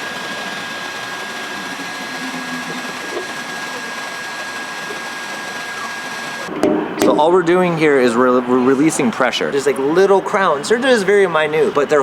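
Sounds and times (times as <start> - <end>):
heat gun whine and air rush: 0.0 - 6.5.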